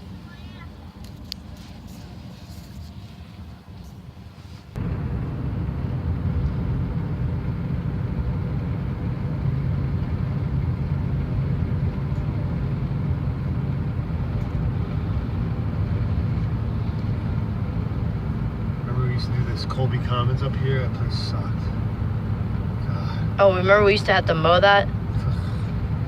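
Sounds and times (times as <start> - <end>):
truck engine and road noise: 0.0 - 26.0.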